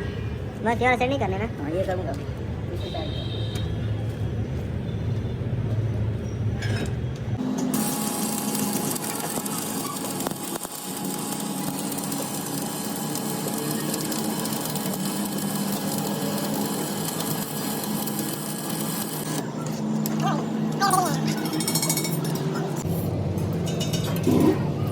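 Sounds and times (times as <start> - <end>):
metalworking machine buzzing and hissing: 7.4 - 23.3.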